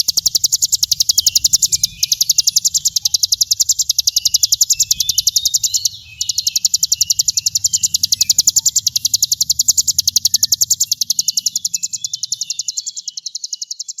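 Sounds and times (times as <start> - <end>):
high-pitched buzzing bird trill: 0.0 - 14.0
soft bird chirps: 0.0 - 14.0.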